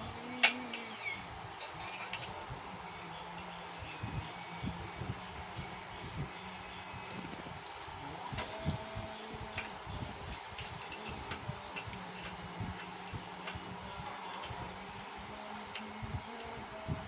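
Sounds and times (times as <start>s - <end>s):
steady low hum: 0.0s - 17.0s
metal parts clicking: 0.4s - 0.8s.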